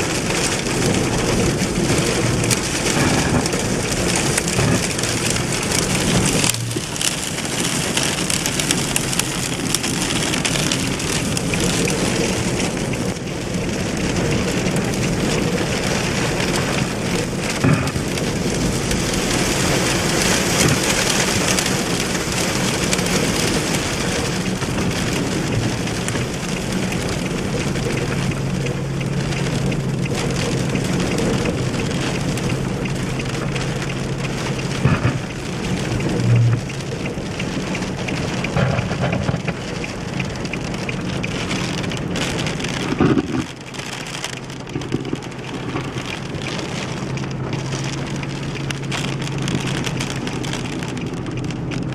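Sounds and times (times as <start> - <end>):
heavy rain pouring: 0.0 - 51.9
low steady hum: 36.0 - 36.8.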